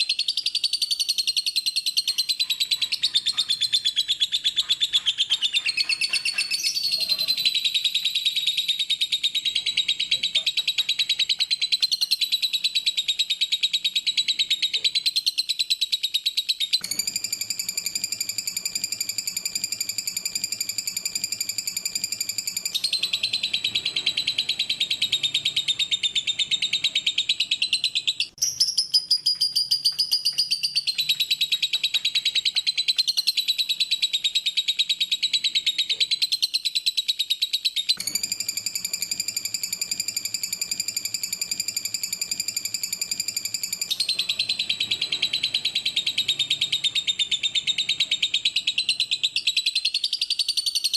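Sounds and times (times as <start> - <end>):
lovebird trilling: 0.0 - 36.6, 37.8 - 50.9.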